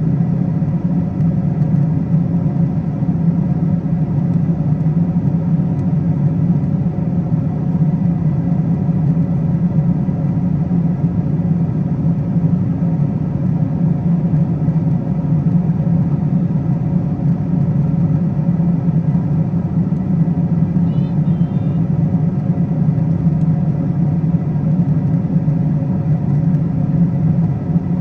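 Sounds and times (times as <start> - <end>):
airplane cabin rumble: 0.0 - 28.0
faint hum tones: 5.0 - 28.0.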